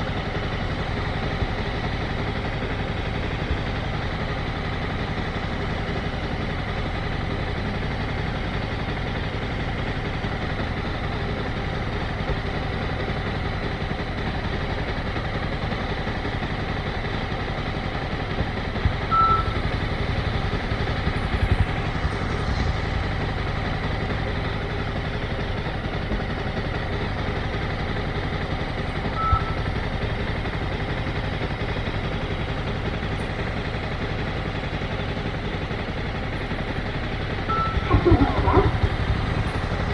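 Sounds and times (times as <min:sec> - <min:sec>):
motorcycle engine running: 0:00.0 - 0:39.9
short electronic beeps: 0:19.1 - 0:19.6, 0:29.2 - 0:29.6, 0:37.5 - 0:39.6
low thumps: 0:37.8 - 0:39.9.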